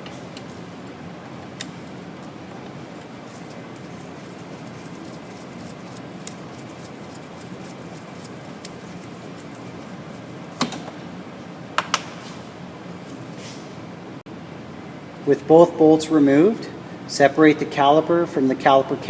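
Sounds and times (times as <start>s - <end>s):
bolts clinking against metal: 0.0s - 3.1s
steady background hum: 0.0s - 19.0s.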